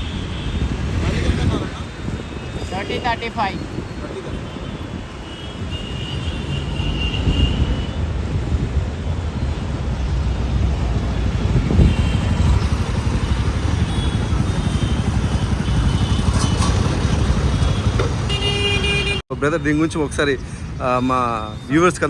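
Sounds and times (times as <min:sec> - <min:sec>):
vehicle engine humming: 0:08.4 - 0:19.2.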